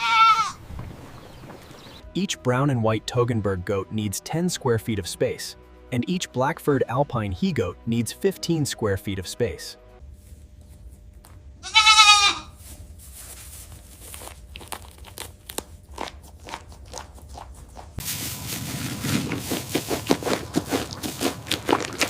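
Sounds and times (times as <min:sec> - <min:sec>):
goat bleating: 0:00.0 - 0:00.6, 0:11.6 - 0:12.6
crunching and clicking: 0:14.0 - 0:18.0, 0:19.2 - 0:22.0.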